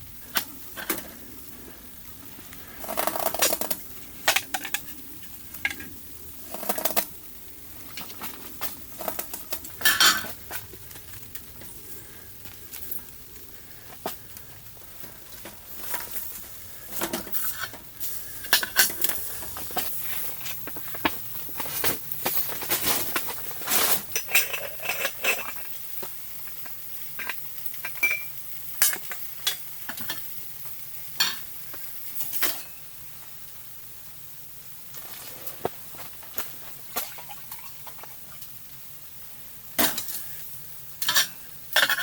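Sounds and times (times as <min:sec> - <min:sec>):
metal cookware clinking: 0:09.0 - 0:10.6, 0:22.9 - 0:25.8, 0:27.2 - 0:30.2, 0:41.0 - 0:42.0.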